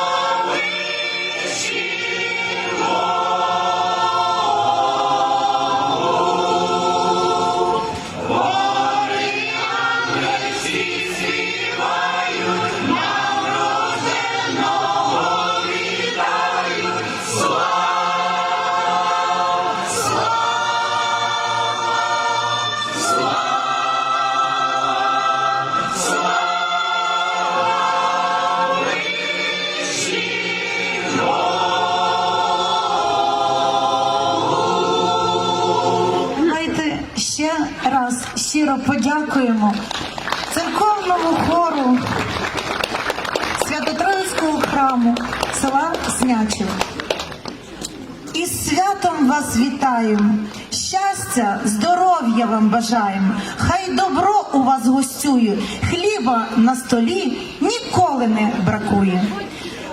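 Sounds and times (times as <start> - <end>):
church choir singing: 0.0 - 36.6.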